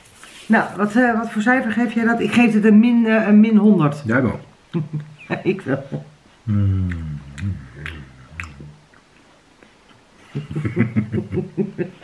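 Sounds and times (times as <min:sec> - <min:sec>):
low sliding vocal hum: 0:06.4 - 0:08.9
person chewing a crunchy snack: 0:06.7 - 0:10.1.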